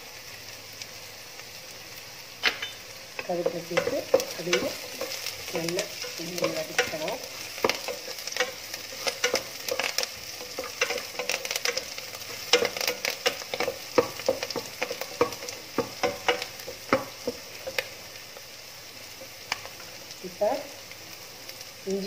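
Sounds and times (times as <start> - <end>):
onions sizzling in hot oil: 0.0 - 22.0
wooden spatula scraping a pan: 3.2 - 18.0.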